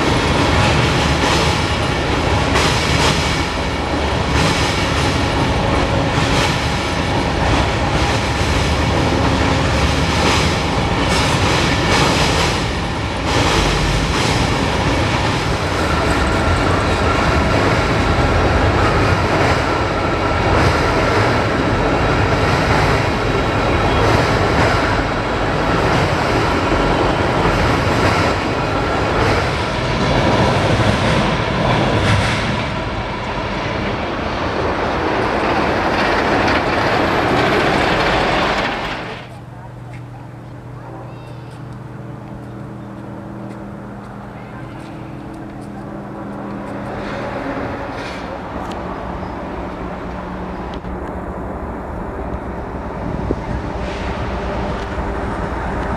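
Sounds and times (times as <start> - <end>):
steel wheels clicking over rail joints: 0.0 - 32.5, 34.8 - 40.6
freight train cars rolling: 0.0 - 55.9.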